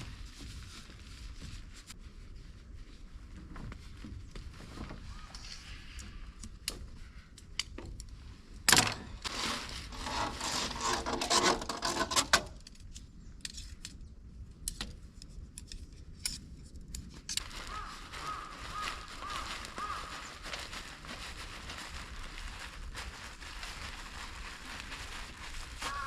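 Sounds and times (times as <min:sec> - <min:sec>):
rustling and crinkling: 0:00.0 - 0:26.0.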